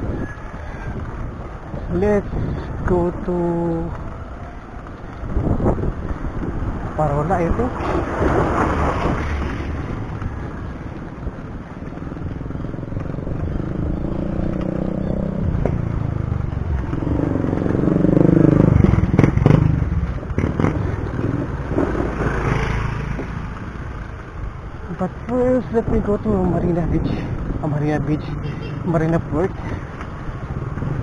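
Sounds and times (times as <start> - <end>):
wind noise: 0.0 - 4.3, 5.0 - 23.8
road noise while cycling: 0.0 - 31.0
vehicle engine passing close: 13.5 - 23.8.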